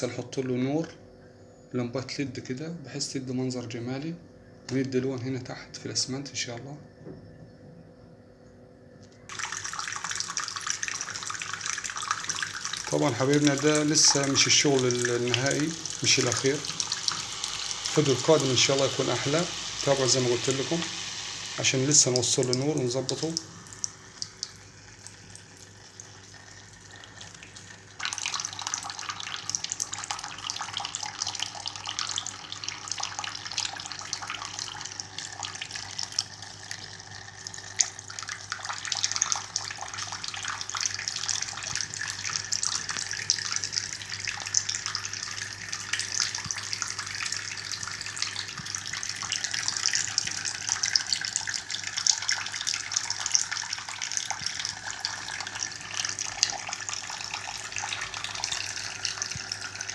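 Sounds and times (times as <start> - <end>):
fountain water splashing: 9.3 - 24.2.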